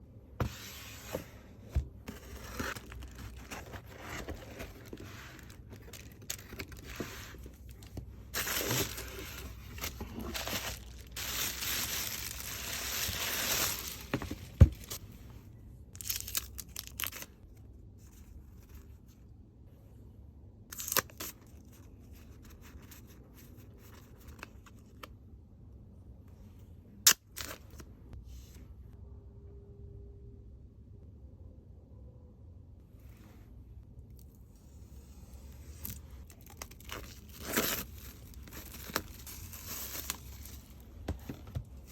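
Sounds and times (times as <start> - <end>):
packaging tearing and crinkling: 8.4 - 15.0.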